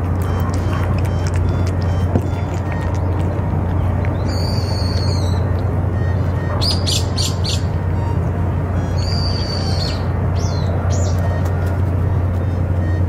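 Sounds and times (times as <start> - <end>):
low rumble: 0.0 - 12.9
bird squawky calling: 4.0 - 11.6.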